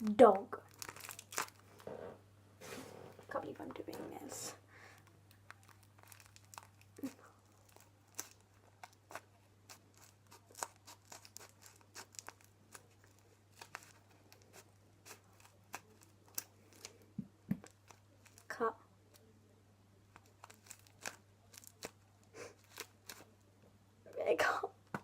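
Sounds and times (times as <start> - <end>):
paper crinkling: 0.6 - 1.9, 2.6 - 18.5, 20.1 - 23.3
scissors snipping paper: 7.7 - 16.9.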